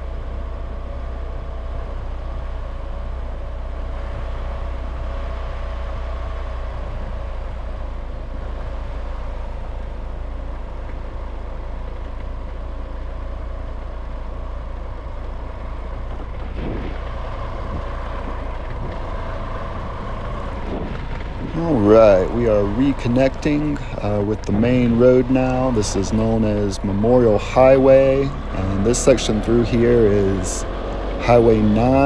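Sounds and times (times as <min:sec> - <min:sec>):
vehicle driving rumble: 0:00.0 - 0:32.0
faint even whine: 0:12.5 - 0:32.0.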